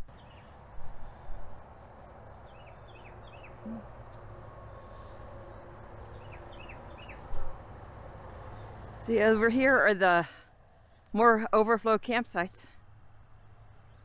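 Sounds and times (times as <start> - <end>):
crickets chirping: 0.0 - 11.2
steady low rumble: 0.0 - 11.2.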